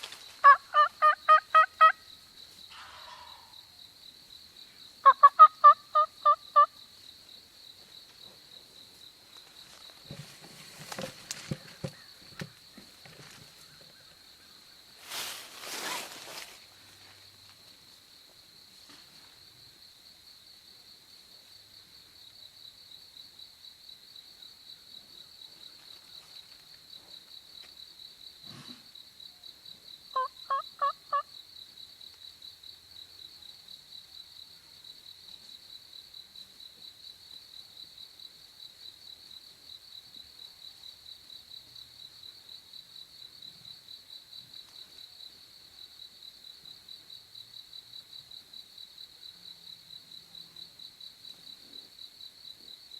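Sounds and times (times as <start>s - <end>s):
crickets trilling: 0.0s - 52.9s
turkey yelping: 0.4s - 2.0s, 5.0s - 6.7s, 30.2s - 31.2s.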